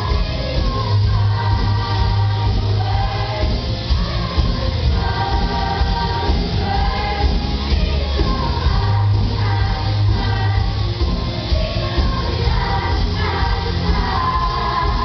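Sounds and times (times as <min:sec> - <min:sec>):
choir singing: 0:00.0 - 0:15.0
instrumental accompaniment with bass: 0:00.0 - 0:15.0.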